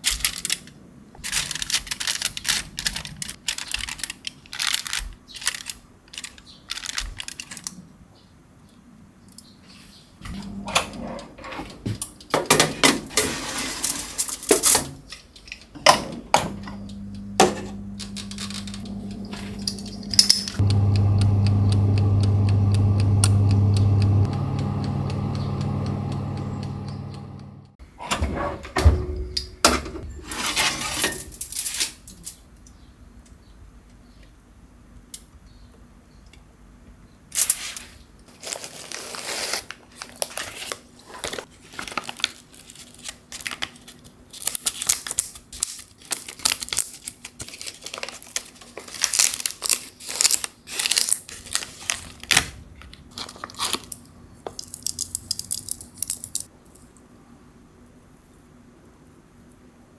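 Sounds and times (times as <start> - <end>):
wrapping crinkling and tearing: 0.0 - 7.8, 37.4 - 56.5.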